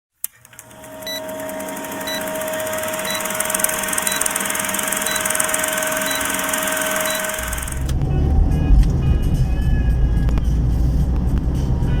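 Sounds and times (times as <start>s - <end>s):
thin steady whine: 0.4s - 7.9s
short high beeps: 1.0s - 1.3s, 2.0s - 7.8s.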